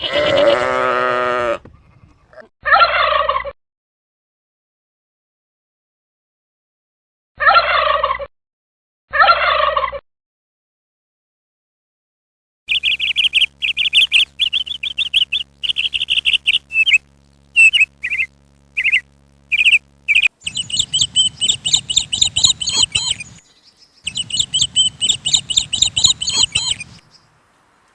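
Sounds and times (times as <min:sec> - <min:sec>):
higher-pitched bird chirping: 0:12.7 - 0:17.0, 0:17.6 - 0:27.3
small bird chirping: 0:12.7 - 0:27.7
low background rumble: 0:14.2 - 0:27.8.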